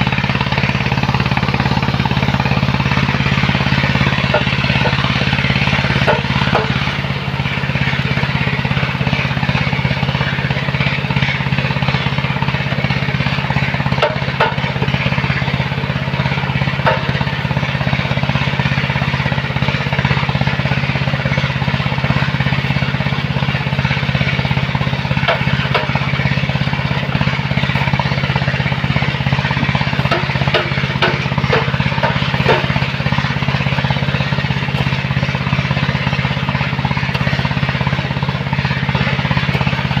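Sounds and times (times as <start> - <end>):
heavy machine engine running: 0.0 - 40.0
sharp clicks and knocks: 1.1 - 7.0, 13.9 - 15.0, 16.7 - 17.3, 25.1 - 26.3, 27.0 - 35.4.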